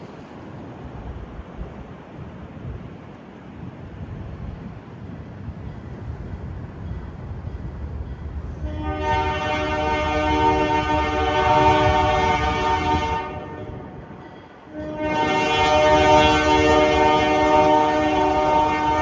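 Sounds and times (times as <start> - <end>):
locomotive rumble: 3.7 - 19.0
locomotive air horn: 8.6 - 14.0, 14.7 - 19.0.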